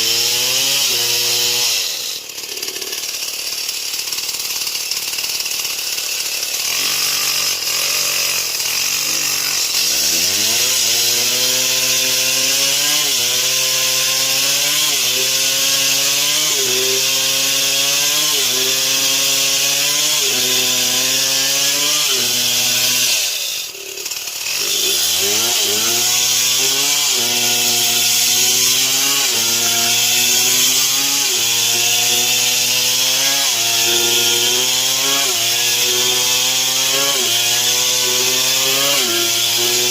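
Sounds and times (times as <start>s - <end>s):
chainsaw sawing through wood: 0.0s - 39.9s
hiss of chain cutting: 0.9s - 3.0s.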